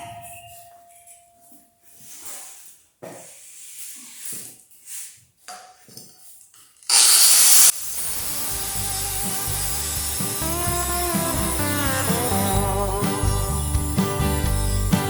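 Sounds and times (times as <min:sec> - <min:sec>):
short loud hiss: 0:06.9 - 0:08.5
background music: 0:08.1 - 0:15.0.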